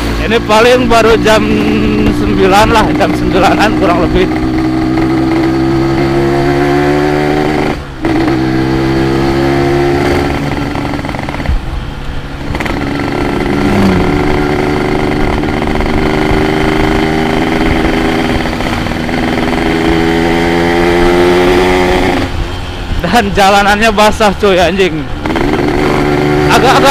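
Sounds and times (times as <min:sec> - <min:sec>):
motorcycle engine accelerating: 0:00.0 - 0:26.9.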